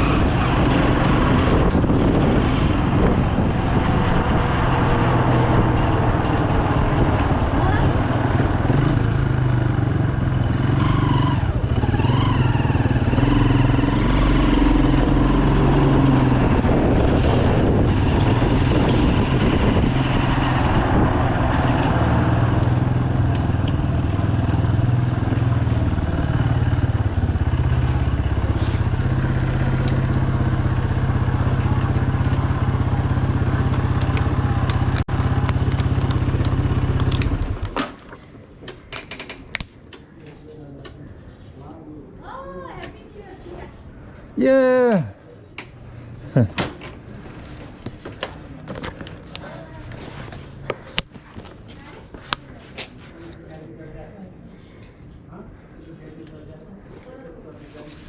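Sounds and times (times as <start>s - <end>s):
motorcycle engine revving: 0.0s - 37.8s.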